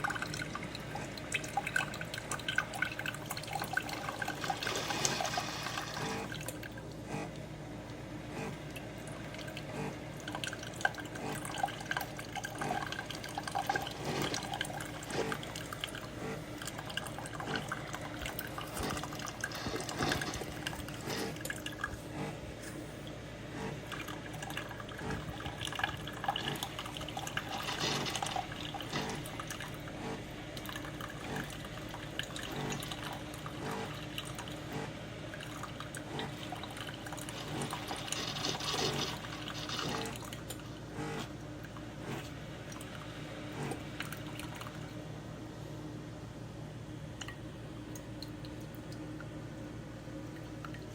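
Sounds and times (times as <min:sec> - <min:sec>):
coffee maker hum: 0:00.0 - 0:50.9
liquid dripping into cup: 0:47.2 - 0:49.5.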